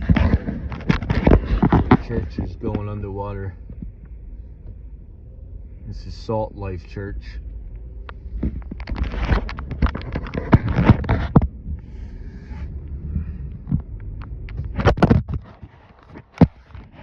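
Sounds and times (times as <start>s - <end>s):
car interior rumble: 0.0s - 17.0s.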